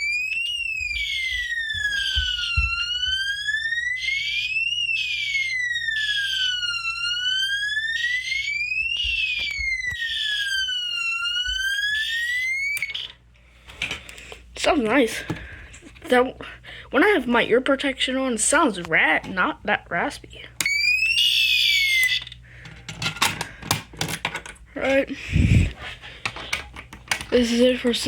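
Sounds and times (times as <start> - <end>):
rising and falling siren tone: 0.0 - 13.1, 20.7 - 22.2.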